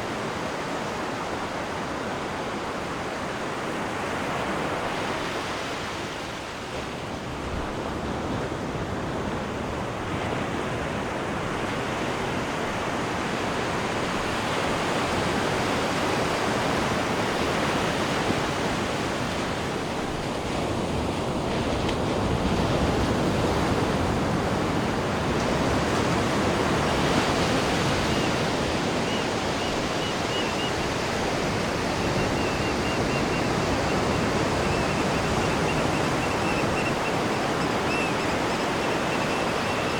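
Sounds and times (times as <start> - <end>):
ship wake water rushing: 12.6 - 39.9.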